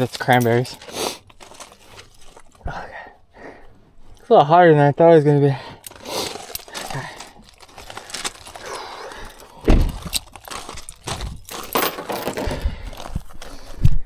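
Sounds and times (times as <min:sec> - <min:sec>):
dull thump: 0:09.6 - 0:10.1
knocks and clicks of handling: 0:09.7 - 0:13.2.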